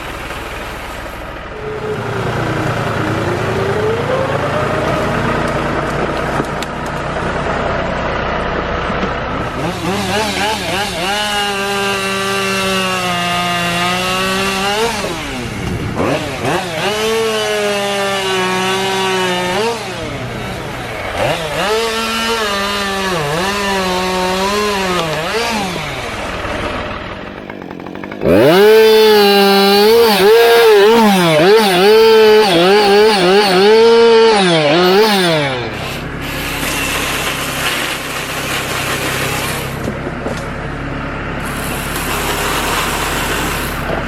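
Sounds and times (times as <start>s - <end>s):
chainsaw cutting wood: 9.4s - 40.7s, 41.4s - 44.0s.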